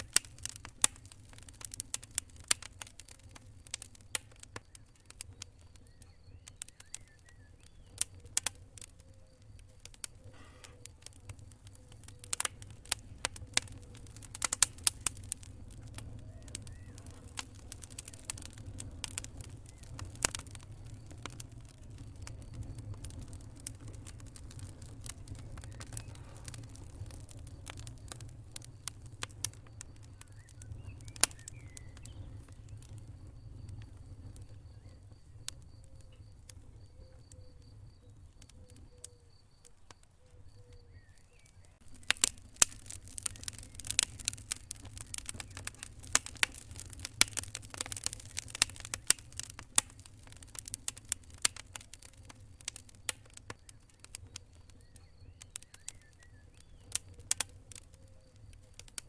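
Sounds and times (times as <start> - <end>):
low rumble of flames: 0.0 - 59.0
wood fire crackling and popping: 0.0 - 59.0.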